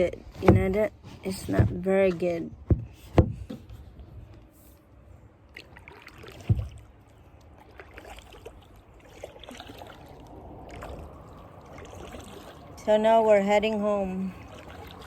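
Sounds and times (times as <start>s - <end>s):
dull thump: 0.4s - 3.9s, 6.4s - 6.8s
small knocks: 0.4s - 4.5s, 6.4s - 6.8s
paddle strokes splashing: 5.4s - 15.0s
water trickling off paddle: 5.4s - 15.0s.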